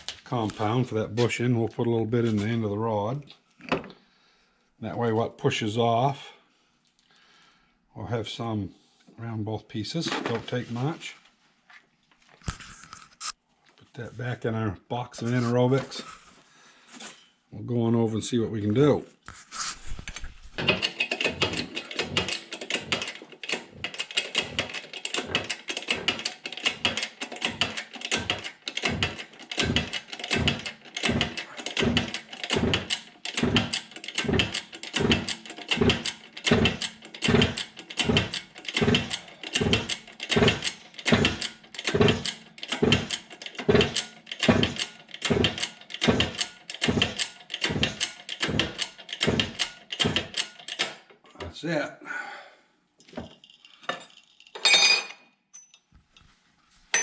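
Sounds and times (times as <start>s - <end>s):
shop press being pumped: 20.6s - 51.0s.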